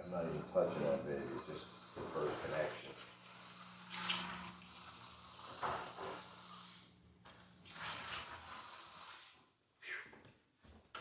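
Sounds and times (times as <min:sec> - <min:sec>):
small electric motor humming: 0:00.3 - 0:06.8.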